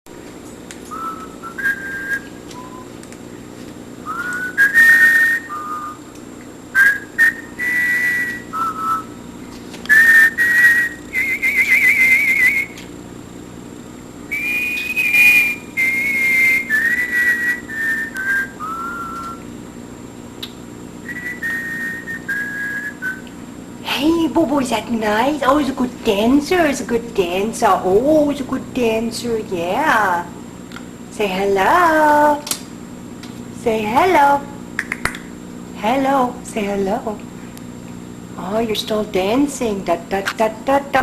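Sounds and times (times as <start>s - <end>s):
person whistling a tune: 0.9s - 2.9s, 4.1s - 6.0s, 6.8s - 9.1s, 9.9s - 12.8s, 14.3s - 19.4s, 21.0s - 23.3s.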